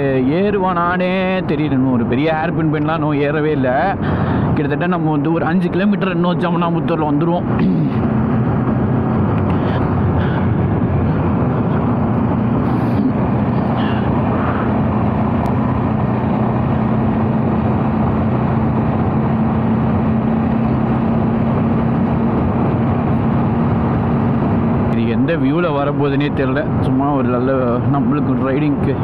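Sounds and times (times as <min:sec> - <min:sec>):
wind rushing over microphone: 0:00.0 - 0:29.0
motorcycle engine running: 0:07.5 - 0:25.5.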